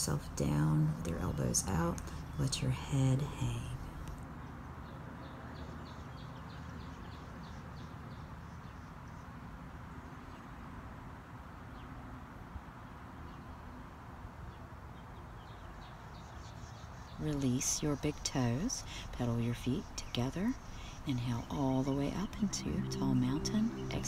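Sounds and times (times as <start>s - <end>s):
steady low rumble: 0.0s - 4.2s, 17.2s - 24.0s
small bird chirping: 15.4s - 24.0s.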